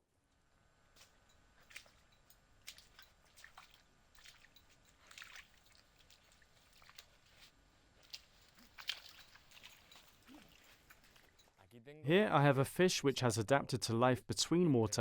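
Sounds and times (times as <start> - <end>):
wet clicks and drips from mud: 1.0 - 11.5.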